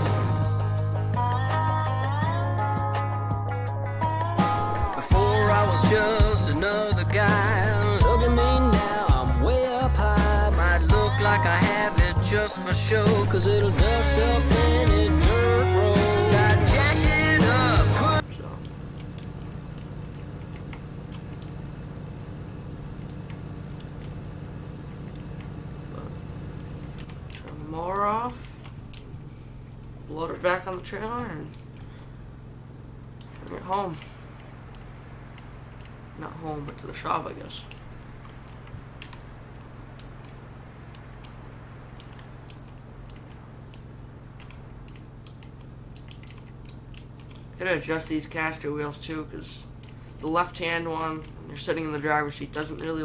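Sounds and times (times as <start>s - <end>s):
riding mower engine running: 0.0s - 2.7s, 4.0s - 53.0s
light irregular clicks: 18.6s - 21.6s, 23.0s - 24.2s, 24.9s - 25.6s, 26.5s - 29.1s, 31.2s - 31.9s, 33.2s - 36.0s, 36.6s - 48.2s, 49.0s - 53.0s
sharp ticks: 18.6s - 21.6s, 22.9s - 24.2s, 24.9s - 29.1s, 31.1s - 32.0s, 33.1s - 53.0s.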